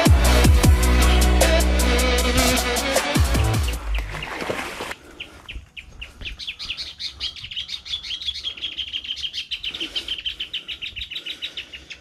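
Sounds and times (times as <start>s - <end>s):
bird chirping: 5.1s - 12.0s.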